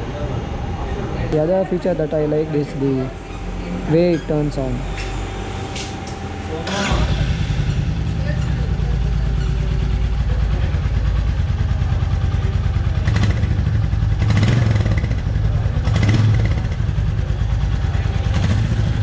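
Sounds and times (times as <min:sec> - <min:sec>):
motorcycle engine idling: 0:06.0 - 0:19.0.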